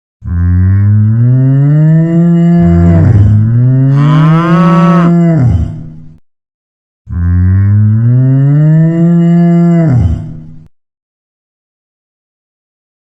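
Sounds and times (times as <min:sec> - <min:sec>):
cow mooing: 0:02.4 - 0:05.2.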